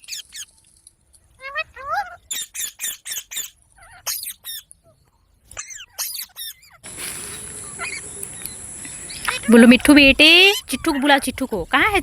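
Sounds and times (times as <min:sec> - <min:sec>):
parrot squawking: 0:05.6 - 0:06.8, 0:07.6 - 0:08.2
steady hiss: 0:06.8 - 0:10.5.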